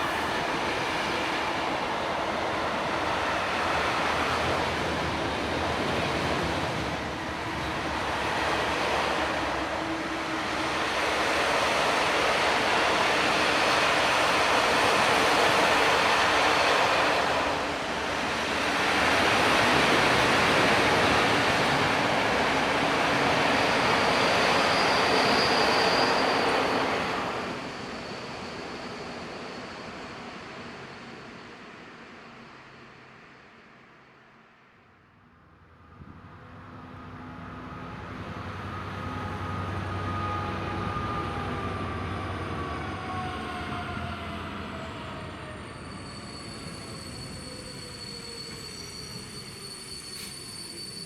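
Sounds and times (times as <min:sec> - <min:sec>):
train wheels on rails: 0:37.2 - 0:51.0.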